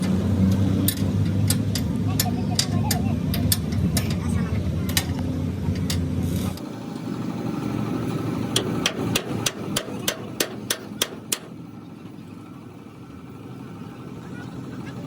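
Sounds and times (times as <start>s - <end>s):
low mechanical rumble: 0.0s - 15.0s
hammer striking metal: 8.5s - 11.6s.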